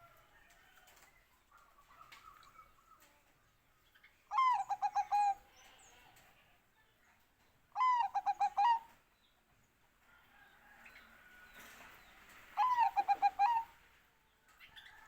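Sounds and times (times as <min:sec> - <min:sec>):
dove cooing song: 0:04.3 - 0:05.4, 0:07.8 - 0:09.0, 0:12.6 - 0:13.8.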